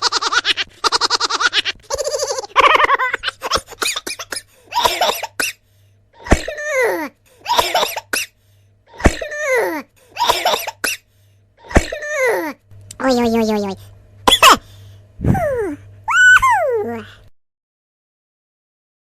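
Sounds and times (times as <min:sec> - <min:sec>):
cartoon voice coughing: 0:03.7 - 0:05.6, 0:06.2 - 0:08.3, 0:08.9 - 0:11.0, 0:11.6 - 0:12.6, 0:14.3 - 0:14.7.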